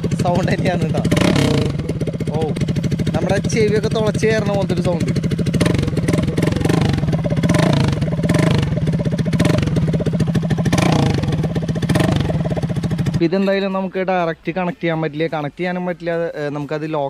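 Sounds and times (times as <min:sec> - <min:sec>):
loud motorcycle engine revving: 0:00.0 - 0:13.3.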